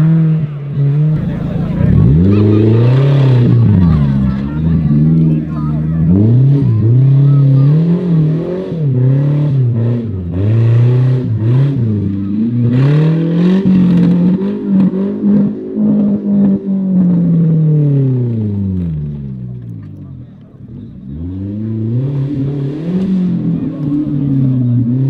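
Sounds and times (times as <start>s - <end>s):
engine revving: 1.2s - 11.8s.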